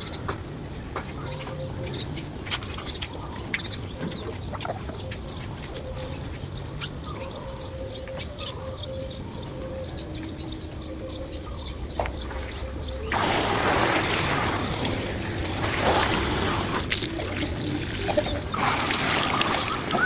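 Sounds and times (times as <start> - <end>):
small birds chirping: 0.0 - 20.0
chickens clucking: 0.1 - 8.9, 13.0 - 20.0.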